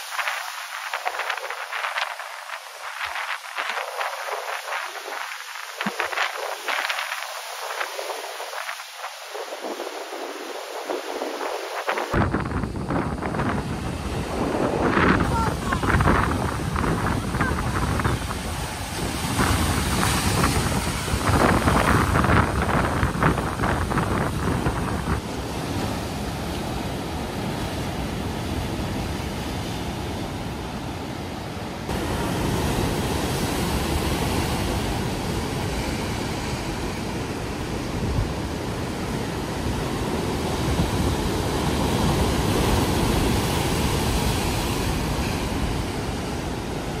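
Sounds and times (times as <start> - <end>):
wind buffeting microphone: 0.0 - 30.8
waves breaking: 0.0 - 47.0.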